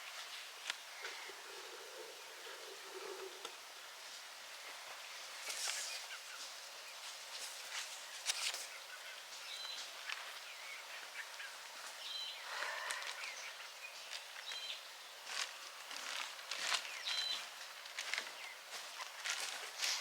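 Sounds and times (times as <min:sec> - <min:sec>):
rustles and crackles: 0:00.0 - 0:10.4, 0:11.8 - 0:20.0
steady outdoor hiss: 0:00.0 - 0:20.0.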